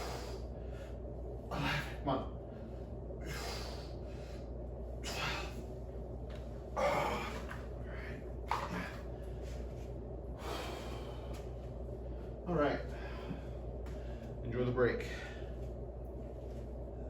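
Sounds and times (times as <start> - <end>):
man breathing forcefully: 0.0 - 5.7, 6.7 - 14.4
low hum: 0.0 - 17.0.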